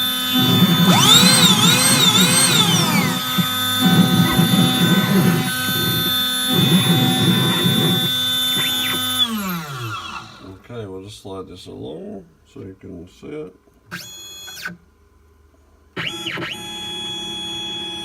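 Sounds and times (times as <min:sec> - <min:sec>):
stepper motor tones gliding: 0:00.0 - 0:10.6
spindle whine: 0:00.0 - 0:10.7
choppy low cutting sound: 0:00.4 - 0:09.0.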